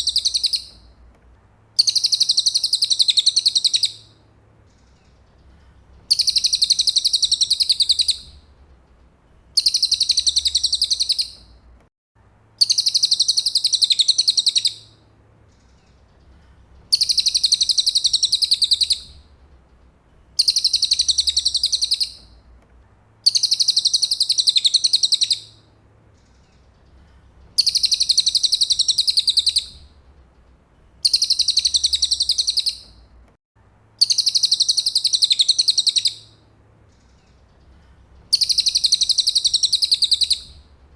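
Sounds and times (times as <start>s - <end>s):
songbird high trill: 6.1s - 8.3s, 9.6s - 11.4s, 20.4s - 22.3s, 23.3s - 25.6s, 27.6s - 29.8s, 31.0s - 33.0s, 34.0s - 36.3s, 38.3s - 40.6s.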